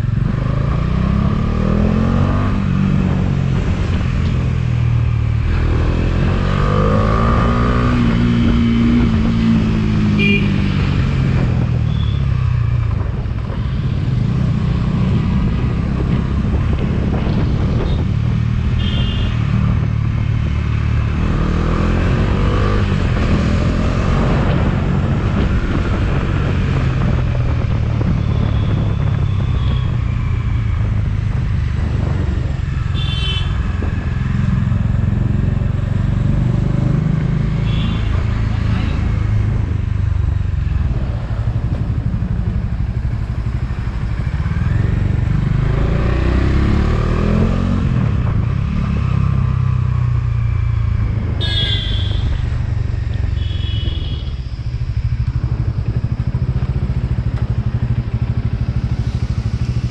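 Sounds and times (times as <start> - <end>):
motorcycle engine running: 0.0 - 59.9
wind and road rumble: 0.0 - 59.9
short horn beeps: 51.4 - 52.4.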